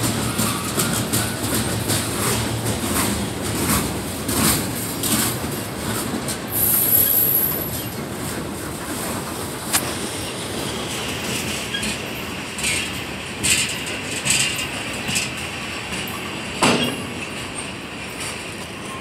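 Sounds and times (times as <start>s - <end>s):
clanks between train cars: 0.0s - 19.0s
train wheels rumbling on rails: 0.0s - 19.0s.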